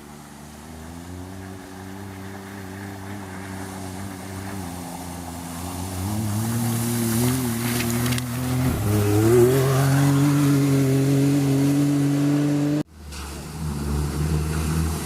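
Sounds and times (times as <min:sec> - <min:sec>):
racing engine approaching: 0:00.1 - 0:12.9.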